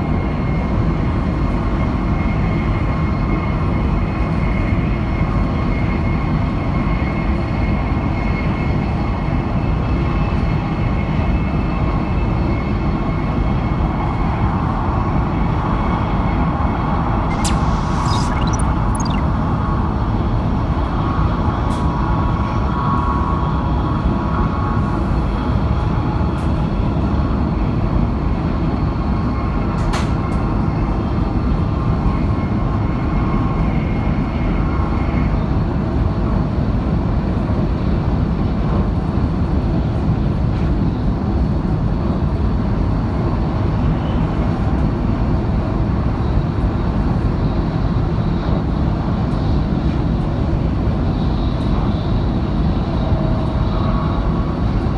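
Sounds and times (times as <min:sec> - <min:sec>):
sharp clicks: 0:17.3 - 0:19.2
faint thin whine: 0:17.3 - 0:19.4
high-speed train rumble: 0:18.7 - 0:54.9.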